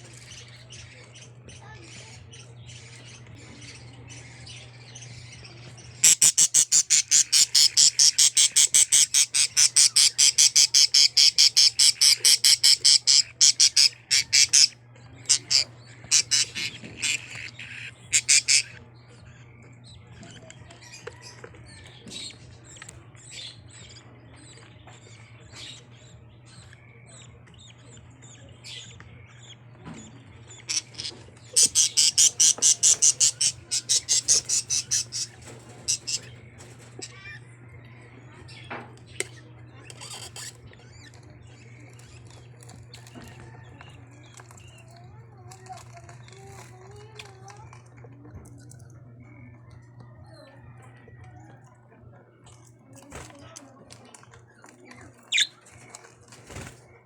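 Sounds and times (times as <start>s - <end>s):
bird squawking: 6.0s - 18.8s, 30.7s - 36.3s, 55.2s - 56.0s.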